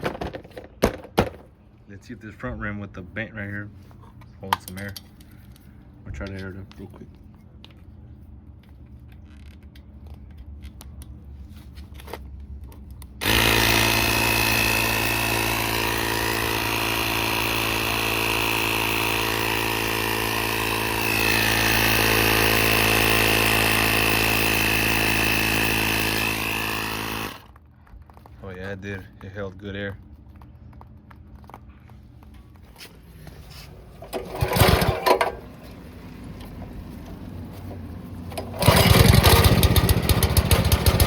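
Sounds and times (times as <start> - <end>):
air compressor running: 13.2 - 27.6, 32.8 - 41.0.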